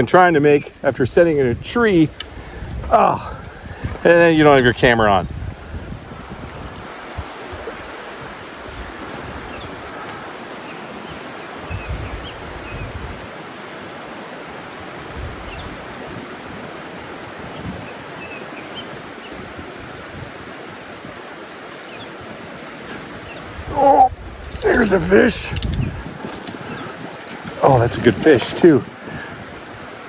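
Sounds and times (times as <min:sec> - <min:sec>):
mountain stream rushing: 0:00.0 - 0:30.0
wind gusts on microphone: 0:00.0 - 0:30.0.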